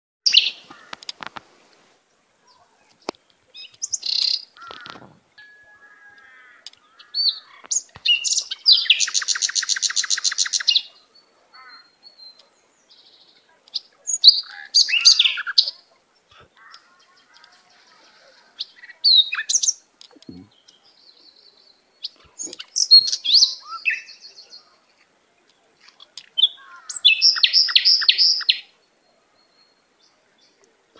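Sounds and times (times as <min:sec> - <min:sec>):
songbirds chirping: 0:00.2 - 0:30.9
bird trill: 0:03.6 - 0:12.4, 0:13.8 - 0:15.8, 0:22.0 - 0:24.6, 0:25.9 - 0:30.6.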